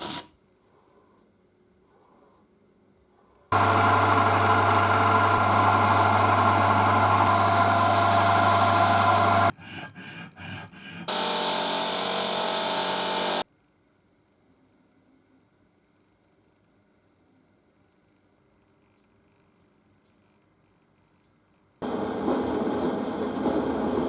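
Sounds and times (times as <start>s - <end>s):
power tool working on metal: 3.5s - 9.5s, 11.1s - 13.4s, 21.8s - 24.0s.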